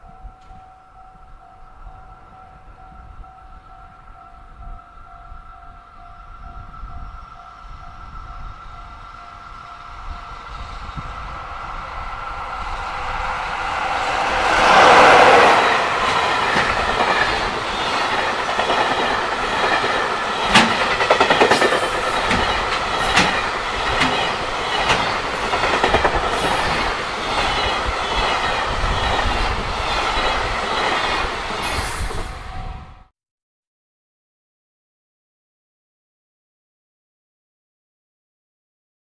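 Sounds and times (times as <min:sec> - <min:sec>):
electric locomotive passing: 0:00.0 - 0:33.1
rumble of wheels on rail: 0:00.0 - 0:33.1
wheels clacking over rail joints: 0:13.5 - 0:31.8.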